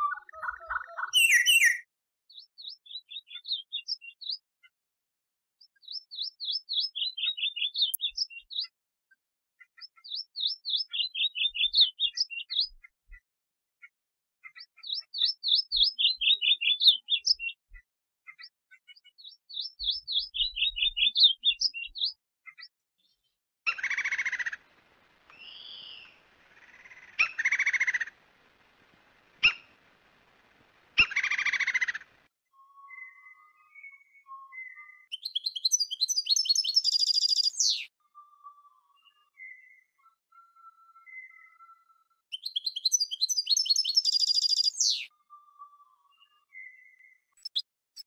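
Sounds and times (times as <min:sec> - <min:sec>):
fuller bird call: 0:00.0 - 0:01.8, 0:25.3 - 0:28.2, 0:31.0 - 0:32.2, 0:34.6 - 0:37.9
songbird singing high notes: 0:00.0 - 0:01.8, 0:32.8 - 0:37.9, 0:42.4 - 0:45.1.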